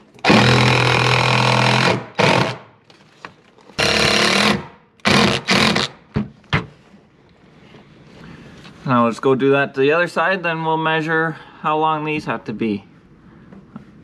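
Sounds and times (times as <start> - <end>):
impact driver driving screws: 0.2 - 2.6, 3.8 - 6.0.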